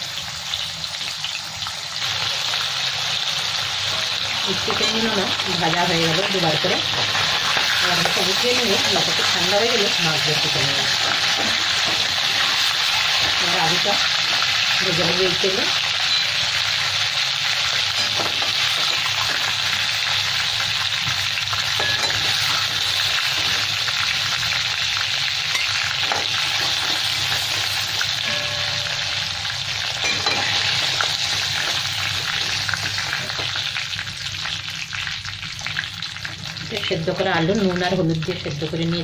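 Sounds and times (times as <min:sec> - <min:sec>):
chicken sizzling in hot oil: 0:00.0 - 0:39.0
metal spatula knocking on pan: 0:21.8 - 0:22.7.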